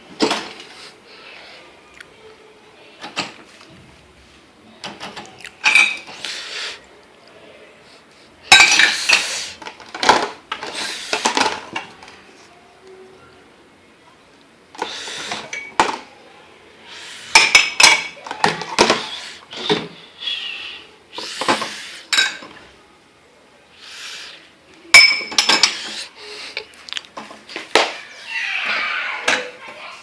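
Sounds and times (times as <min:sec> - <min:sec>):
crockery and cutlery clinking: 0:04.8 - 0:06.2, 0:08.5 - 0:12.1, 0:14.8 - 0:16.0, 0:17.3 - 0:19.9, 0:21.4 - 0:22.7, 0:24.8 - 0:26.1
dishes scraping and sliding: 0:04.8 - 0:06.5, 0:08.5 - 0:12.1, 0:14.8 - 0:16.0, 0:17.1 - 0:20.0, 0:21.2 - 0:22.7, 0:25.0 - 0:27.6.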